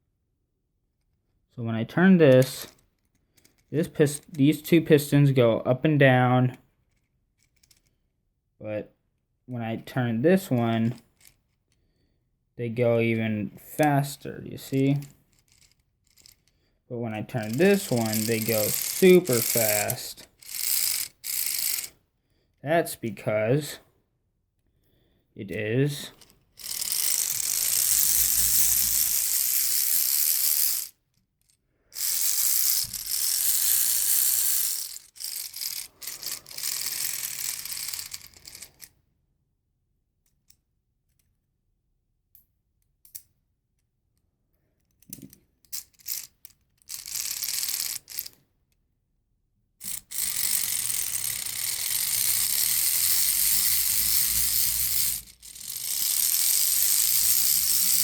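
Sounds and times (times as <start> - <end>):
plastic gears whirring and rattling: 2.4 - 5.1, 6.8 - 8.0, 10.4 - 11.9, 13.8 - 16.7, 17.3 - 22.0, 26.0 - 39.0, 44.8 - 48.4, 49.8 - 58.0.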